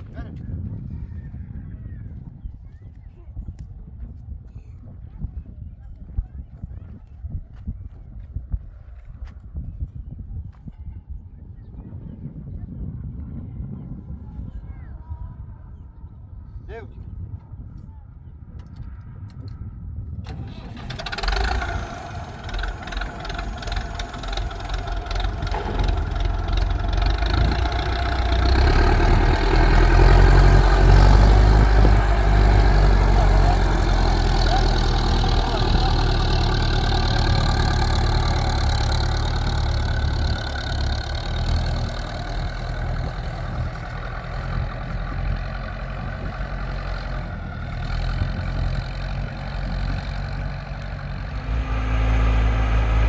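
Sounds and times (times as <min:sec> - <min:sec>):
engine rumbling: 0:20.2 - 0:53.0.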